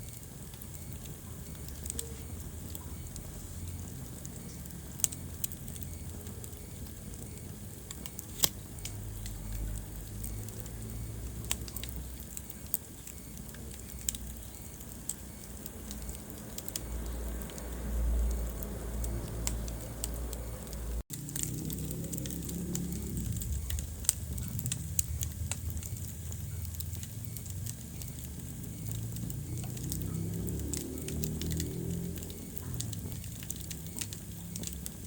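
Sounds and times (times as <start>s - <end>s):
hiss of flames: 0.0s - 35.0s
wood fire crackling and popping: 0.0s - 35.0s
low rumble: 16.8s - 30.6s.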